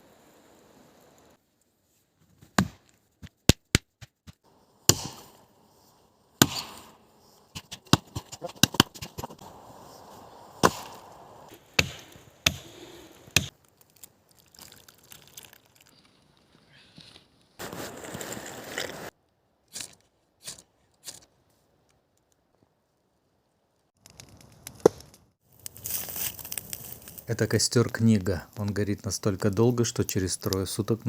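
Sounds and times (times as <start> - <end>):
axe chopping wood: 2.6 - 2.8, 3.5 - 5.3, 6.4 - 6.8, 7.6 - 9.3, 10.6 - 10.9, 11.8 - 12.7.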